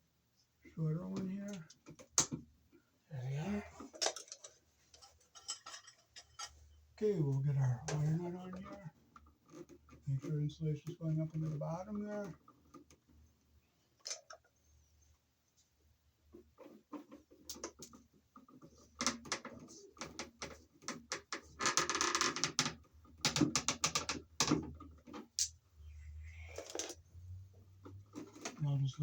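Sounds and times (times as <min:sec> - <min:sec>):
wire nut clicking and scraping: 0:03.8 - 0:06.8, 0:07.9 - 0:10.3, 0:14.0 - 0:14.5, 0:16.4 - 0:25.6.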